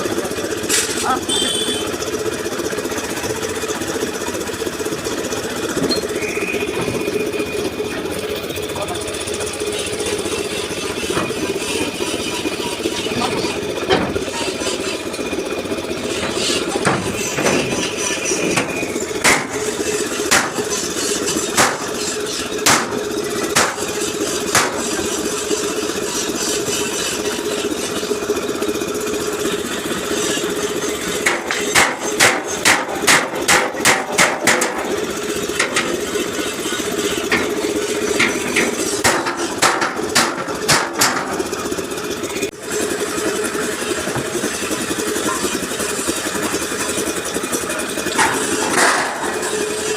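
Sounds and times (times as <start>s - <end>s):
engine hum: 0.0s - 49.9s
hammer striking steel bumper: 16.0s - 25.2s, 31.2s - 36.1s, 37.2s - 41.6s.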